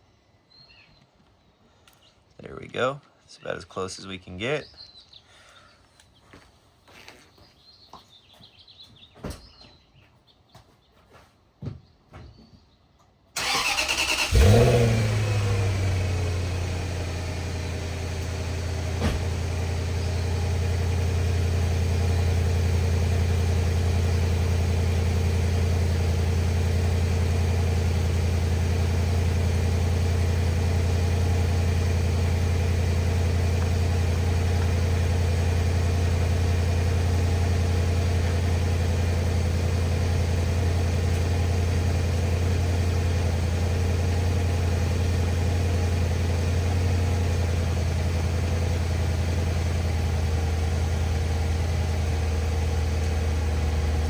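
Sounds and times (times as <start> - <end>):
engine fast idle: 13.4 - 54.0.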